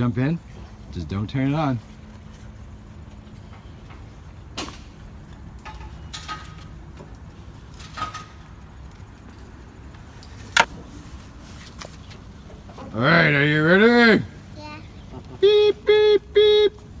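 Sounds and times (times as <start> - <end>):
toy trucks clicking and knocking: 10.3 - 10.7.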